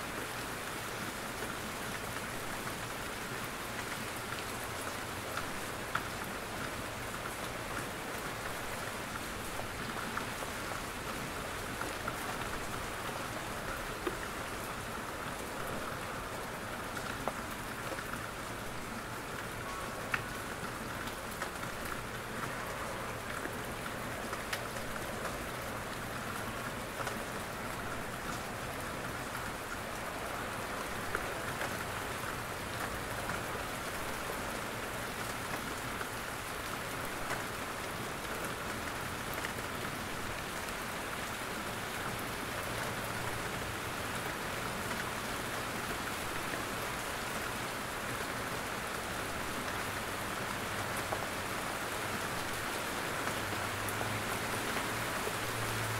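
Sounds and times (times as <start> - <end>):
rain pattering in forest: 0.0 - 55.9.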